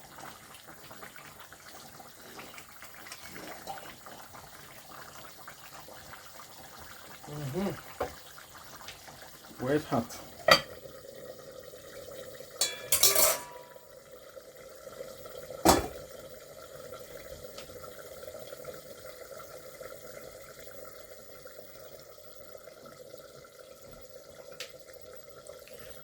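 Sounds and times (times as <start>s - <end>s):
metal cookware clinking: 10.4s - 10.8s, 12.6s - 13.9s, 15.7s - 16.0s.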